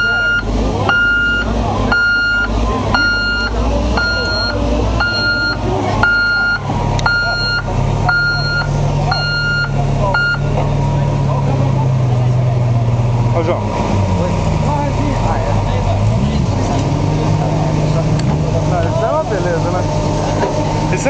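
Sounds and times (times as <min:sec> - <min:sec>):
reversing alarm beeping: 0:00.0 - 0:10.6
engine humming: 0:00.0 - 0:21.0.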